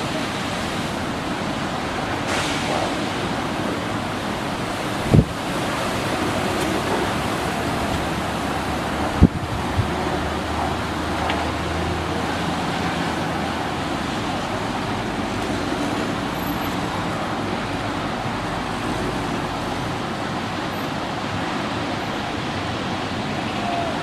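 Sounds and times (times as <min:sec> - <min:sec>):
road traffic noise: 0:00.0 - 0:24.0.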